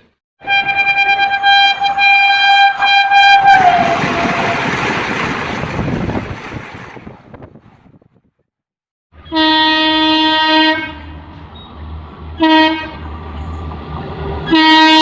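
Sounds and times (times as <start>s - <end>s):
train horn long note: 0.4s - 4.5s, 9.2s - 11.3s, 12.4s - 13.1s, 14.4s - 15.0s
train rushing past: 0.4s - 7.9s, 11.0s - 15.0s.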